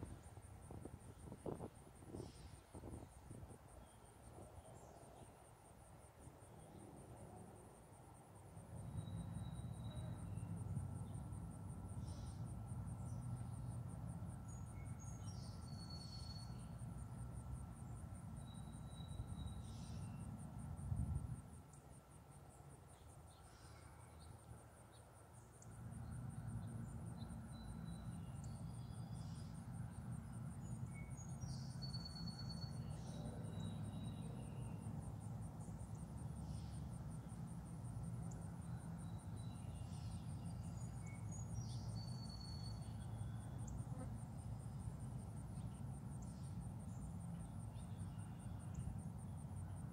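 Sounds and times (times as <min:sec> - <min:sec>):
insects trilling: 0:00.0 - 0:49.9
bird chirps: 0:39.0 - 0:43.5.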